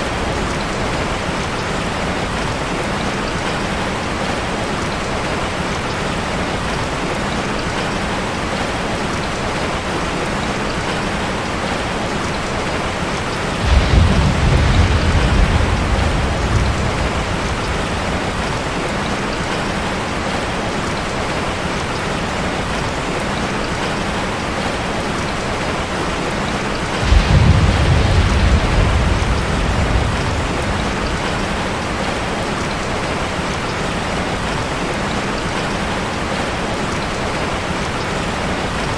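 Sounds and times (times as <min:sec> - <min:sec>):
heavy rain on metal roof: 0:00.0 - 0:38.9
thunder rolling: 0:13.4 - 0:19.5, 0:26.9 - 0:33.2.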